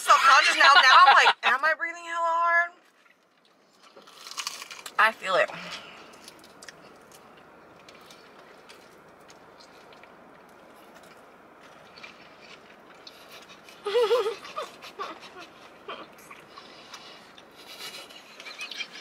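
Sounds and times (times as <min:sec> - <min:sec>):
chewing and mouth clicks: 0:02.9 - 0:19.0
high-pitched giggle: 0:13.8 - 0:16.0.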